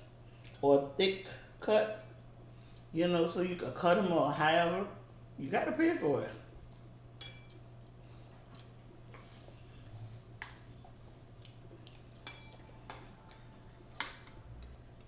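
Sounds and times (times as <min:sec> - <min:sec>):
faint low hum: 0:00.0 - 0:15.0
cutlery clinking against dishes: 0:07.2 - 0:07.6, 0:11.8 - 0:15.0.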